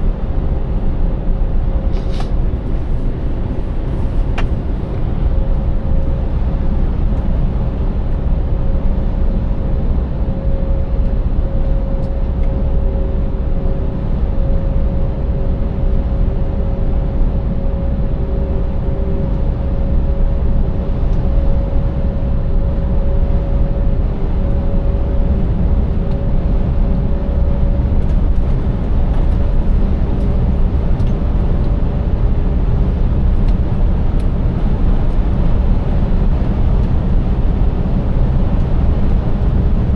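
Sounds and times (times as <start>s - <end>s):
low road rumble: 0.0s - 39.9s.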